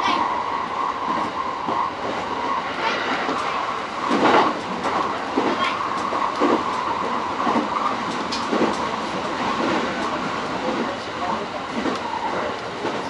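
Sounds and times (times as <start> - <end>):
train running noise: 0.0 - 13.0.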